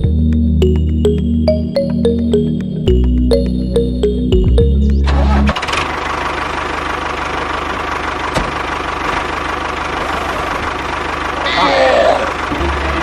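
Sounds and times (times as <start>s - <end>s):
background music: 0.0s - 5.6s.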